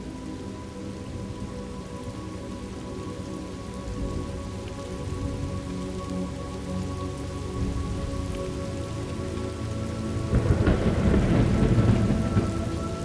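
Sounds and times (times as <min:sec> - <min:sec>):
rain falling: 0:00.0 - 0:13.0
thunder rumbling: 0:10.3 - 0:13.0.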